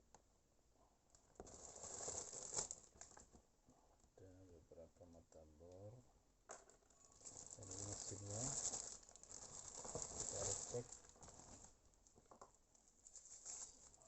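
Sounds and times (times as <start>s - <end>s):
plastic case rustling: 7.2s - 12.5s.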